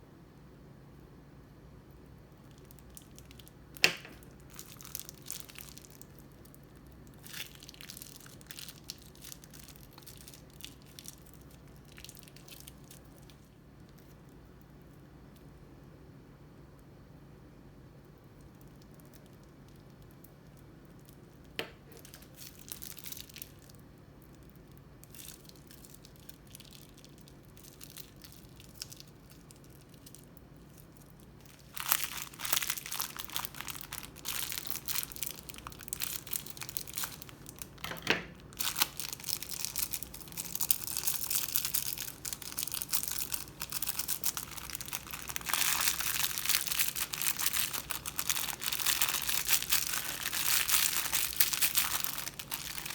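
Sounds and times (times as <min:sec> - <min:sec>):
crunchy slime crackling: 0:02.3 - 0:14.9, 0:18.2 - 0:52.9.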